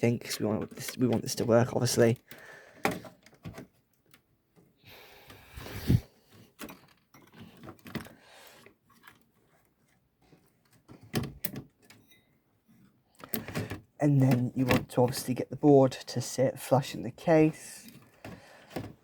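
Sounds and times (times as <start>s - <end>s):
handling rustling: 0.3s - 15.6s.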